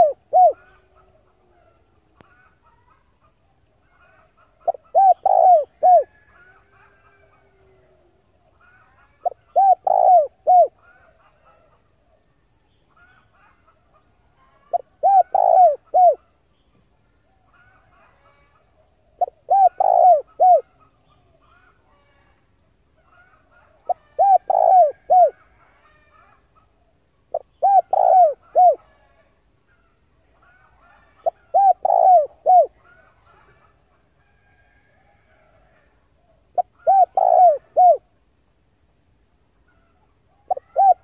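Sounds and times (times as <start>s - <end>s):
dove cooing: 0.0s - 1.7s, 4.0s - 7.9s, 8.7s - 11.7s, 14.6s - 16.3s, 19.1s - 20.8s, 23.9s - 26.7s, 27.3s - 29.1s, 30.5s - 33.8s, 36.5s - 38.1s, 40.3s - 41.0s.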